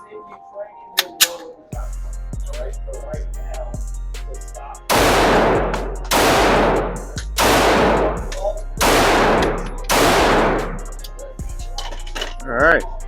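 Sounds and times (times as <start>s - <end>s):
background music with beat: 1.6s - 13.0s
pistol shots with echo: 4.9s - 10.9s.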